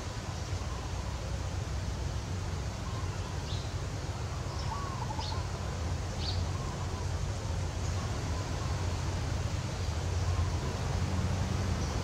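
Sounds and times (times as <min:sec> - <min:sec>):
faint high bird chirps: 0:02.8 - 0:05.6.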